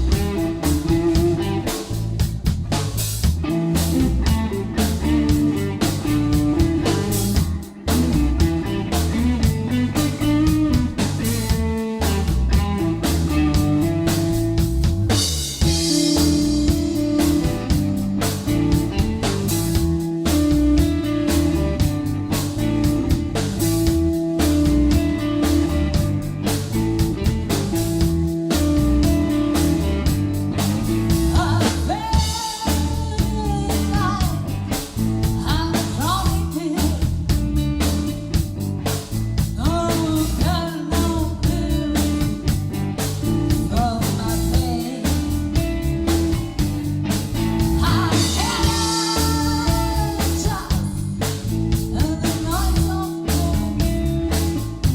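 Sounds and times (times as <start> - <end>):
bass guitar: 0.0 - 54.9
drum kit beat: 0.0 - 54.9
electric guitar: 0.0 - 54.9
woman singing: 31.2 - 34.6, 35.3 - 37.4, 39.6 - 42.5, 43.5 - 45.7, 47.6 - 54.6.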